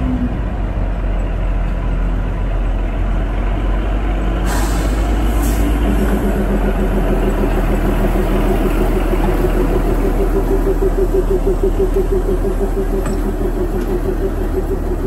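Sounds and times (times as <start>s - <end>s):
train locomotive engine rumbling: 0.0s - 15.0s
short hiss: 4.5s - 5.8s
pitched throbbing drone: 5.4s - 15.0s.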